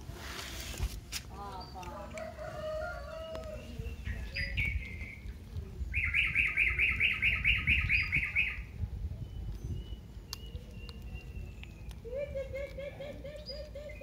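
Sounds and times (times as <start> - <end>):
bird chirping: 3.0 - 14.0.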